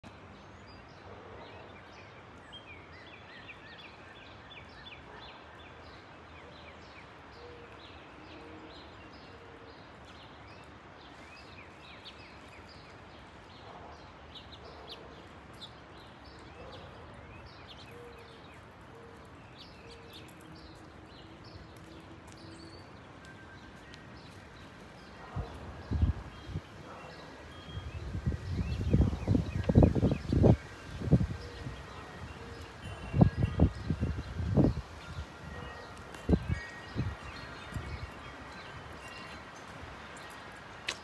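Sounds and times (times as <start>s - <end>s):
small birds chirping: 13.6s - 41.0s.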